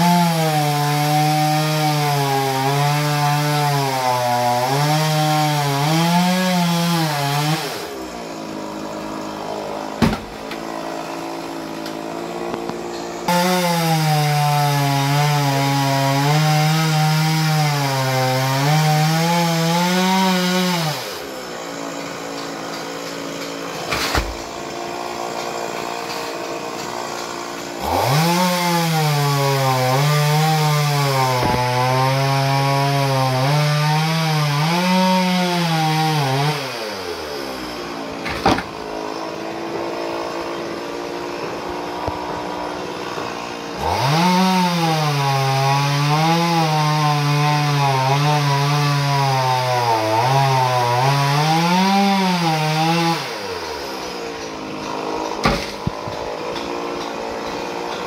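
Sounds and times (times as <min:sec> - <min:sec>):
chainsaw cutting wood: 0:00.0 - 0:58.0
sharp knocks: 0:10.0 - 0:10.7, 0:54.9 - 0:58.0.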